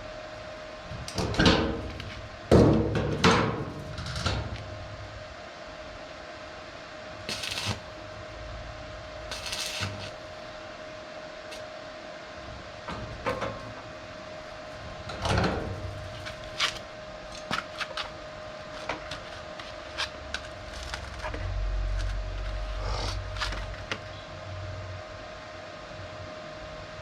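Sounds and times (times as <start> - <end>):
faint hum: 0.0 - 27.0
knocks and clanks on sheet steel: 1.2 - 4.5.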